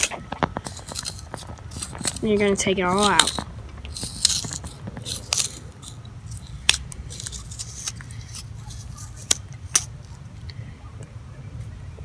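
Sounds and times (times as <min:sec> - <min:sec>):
knife scraping gourd pulp: 0:00.0 - 0:10.3.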